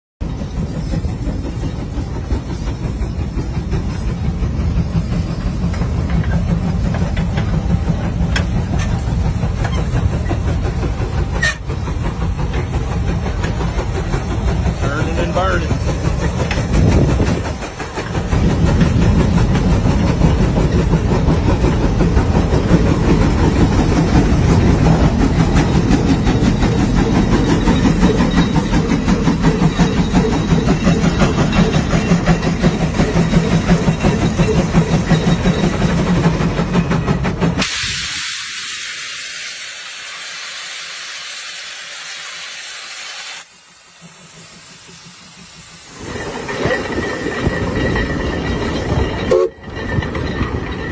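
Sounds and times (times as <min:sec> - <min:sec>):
steady hiss: 0:37.6 - 0:46.3.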